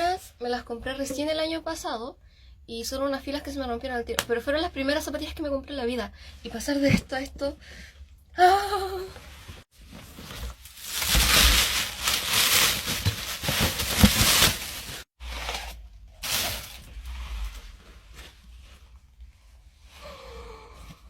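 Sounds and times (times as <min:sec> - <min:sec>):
packaging crinkling: 0:10.5 - 0:15.6.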